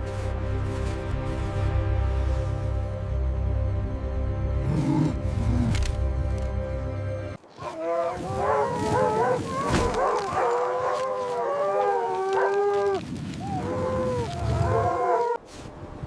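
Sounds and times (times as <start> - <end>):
wolves howling: 7.5 - 15.4.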